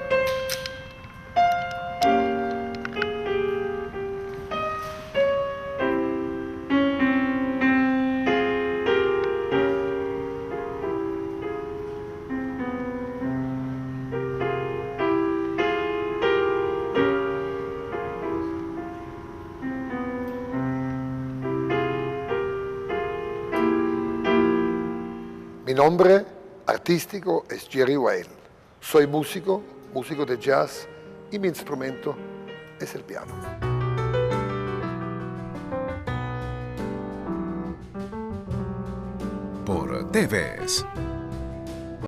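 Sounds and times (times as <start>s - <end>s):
solo piano chords: 0.0s - 42.0s.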